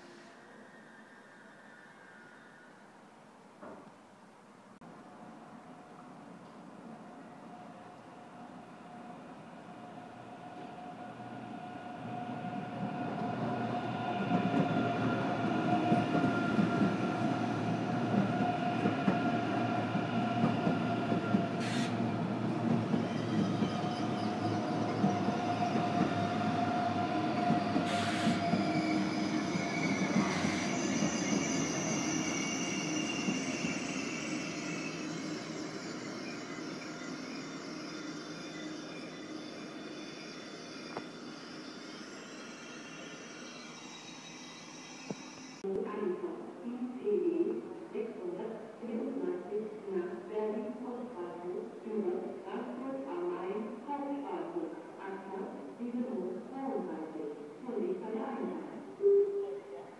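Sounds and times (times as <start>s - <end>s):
high-pitched brake squeal: 0.0s - 3.1s, 21.6s - 22.0s, 23.0s - 45.6s
train wheels rumbling: 11.2s - 37.7s.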